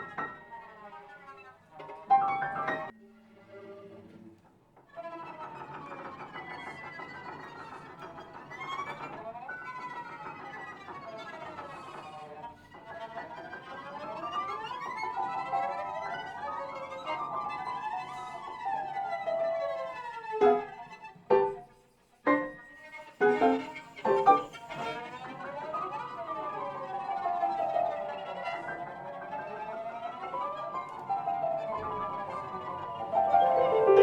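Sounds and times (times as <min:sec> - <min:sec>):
violin cello and piano trio: 0:00.0 - 0:34.0.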